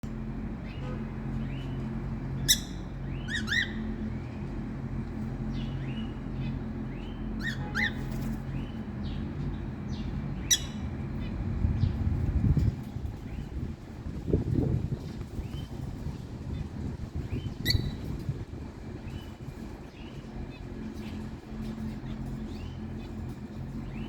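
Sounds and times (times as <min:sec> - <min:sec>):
steady low hum: 0:00.0 - 0:24.0
small birds chirping: 0:00.1 - 0:24.0
sharp shrill bird calls: 0:02.4 - 0:04.0, 0:07.0 - 0:08.3, 0:10.4 - 0:10.8, 0:17.4 - 0:18.0.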